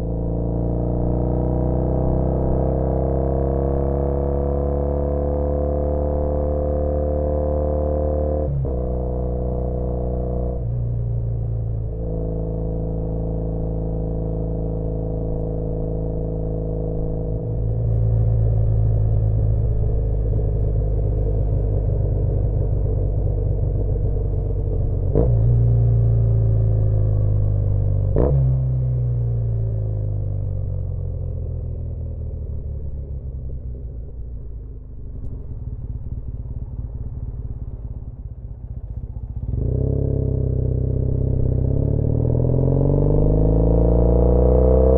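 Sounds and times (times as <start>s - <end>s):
motorcycle engine running: 8.6s - 44.9s
exhaust cracks: 17.0s - 26.1s.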